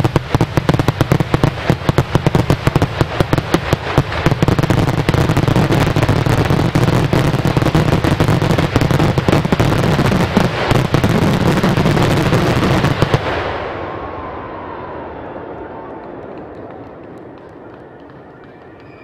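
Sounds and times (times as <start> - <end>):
fireworks bangs and crackling: 0.0 - 14.3.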